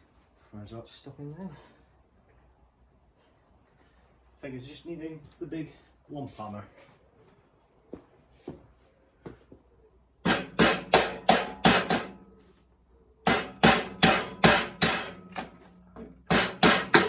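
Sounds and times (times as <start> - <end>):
hammer striking metal: 10.2 - 12.3, 13.2 - 17.0.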